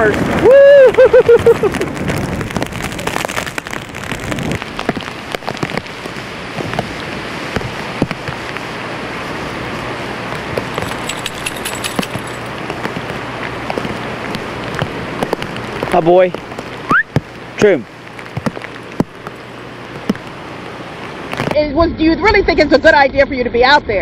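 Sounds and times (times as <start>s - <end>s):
wind-driven rain rushing hiss: 0.0s - 11.1s
raindrops tapping nearby: 0.9s - 8.7s, 10.3s - 21.6s.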